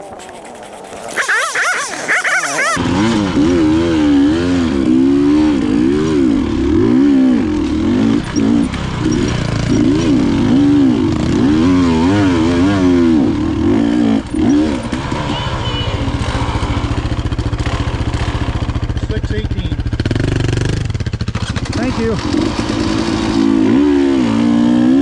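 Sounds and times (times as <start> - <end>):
motorcycle engine revving: 1.1 - 25.0.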